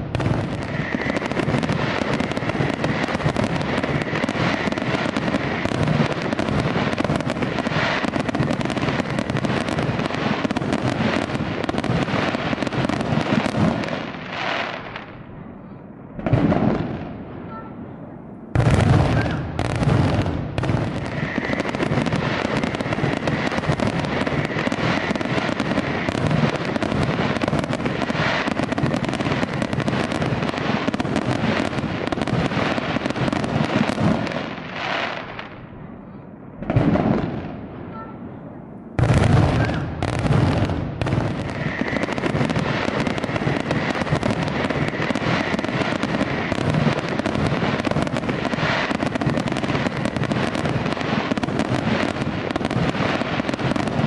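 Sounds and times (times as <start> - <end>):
fireworks bursting and crackling: 0.0 - 54.0
loud firework bang: 16.2 - 17.2, 18.5 - 34.4, 39.0 - 54.0.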